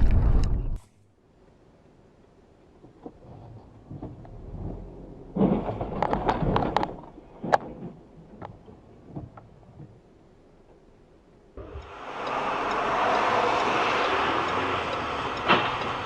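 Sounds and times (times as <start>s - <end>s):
cracking and clattering: 3.0s - 10.0s
vehicle collision impact: 14.4s - 16.0s.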